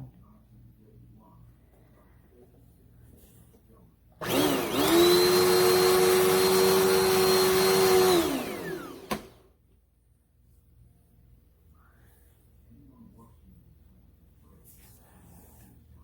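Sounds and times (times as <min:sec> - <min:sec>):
vacuum cleaner motor whining: 0:04.2 - 0:09.5.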